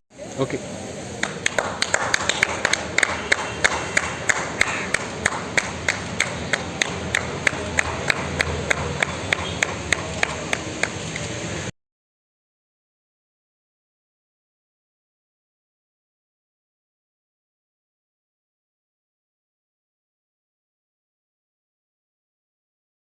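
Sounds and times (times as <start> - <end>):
background noise: 0.1 - 11.7
rhythmic clapping: 1.2 - 11.5.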